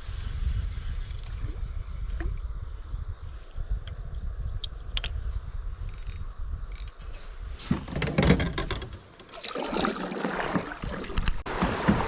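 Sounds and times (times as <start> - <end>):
wind rumbling on microphone: 0.0 - 9.0
high insect drone: 0.1 - 9.4
sharp ticks: 5.8 - 7.0.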